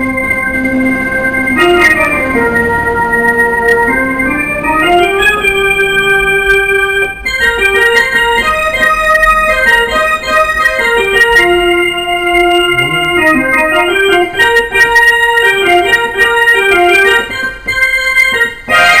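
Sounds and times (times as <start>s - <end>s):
organ-like electronic keyboard: 0.0s - 19.0s.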